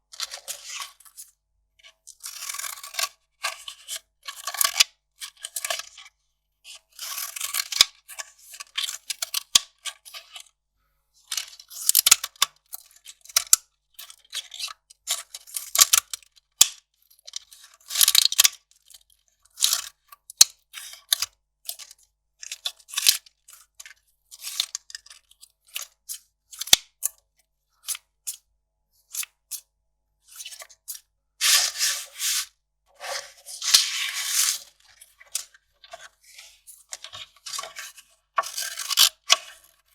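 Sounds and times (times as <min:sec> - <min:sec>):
paper tearing and crinkling: 0:31.4 - 0:34.7.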